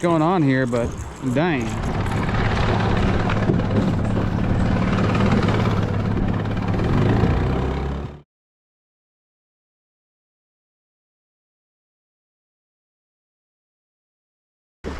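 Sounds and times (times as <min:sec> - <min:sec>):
water splashing: 0:00.0 - 0:07.6
boat motor running: 0:00.0 - 0:08.2
wind: 0:00.0 - 0:08.2.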